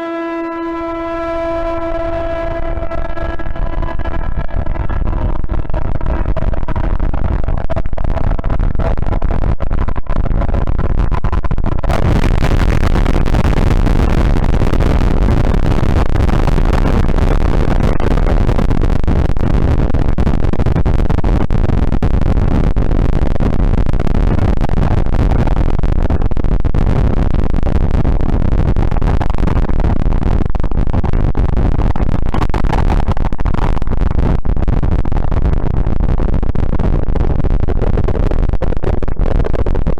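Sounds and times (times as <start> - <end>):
horn-like chord: 0.0 - 4.8
deep rumble: 0.0 - 39.9
dense wall of noise: 0.0 - 39.9.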